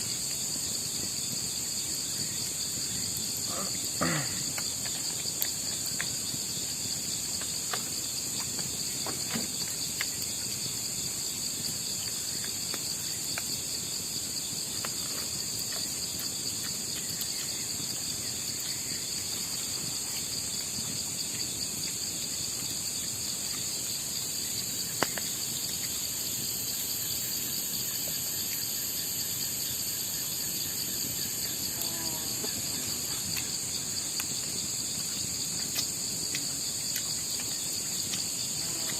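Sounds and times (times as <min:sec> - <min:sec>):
night insects chirping: 0:00.0 - 0:38.9.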